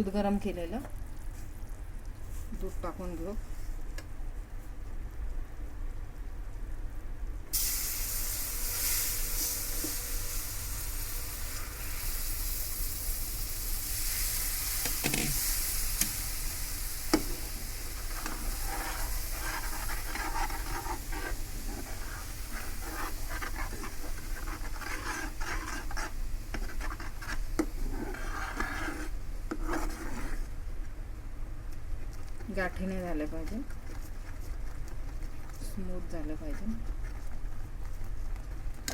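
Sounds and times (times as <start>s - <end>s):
milk sizzling in a hot pan: 7.5s - 30.6s
spoon stirring and scraping pan: 14.1s - 30.9s.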